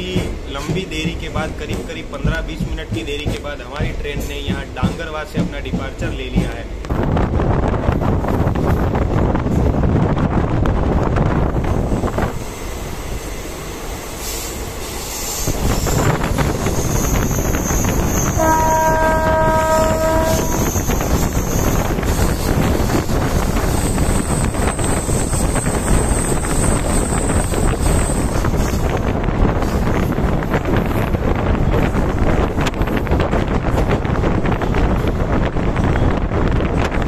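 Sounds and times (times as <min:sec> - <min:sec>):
train rumble with wheel clatter: 0:00.0 - 0:37.0
train horn blast: 0:18.2 - 0:20.8.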